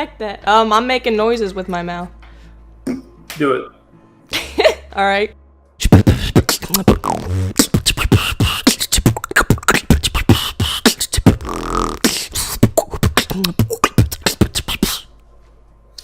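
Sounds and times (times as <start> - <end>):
pitched vocal effects: 5.8 - 15.0
beatboxing: 5.8 - 15.1.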